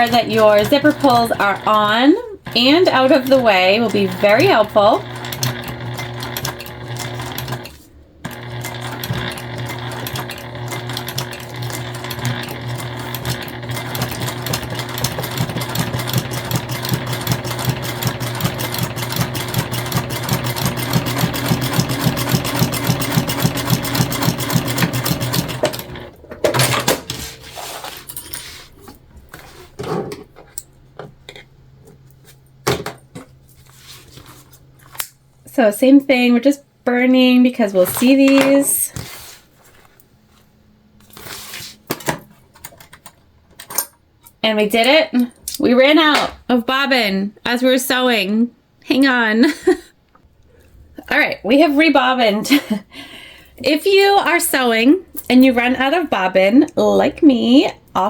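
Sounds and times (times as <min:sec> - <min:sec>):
sewing machine stitching: 0:00.0 - 0:27.0.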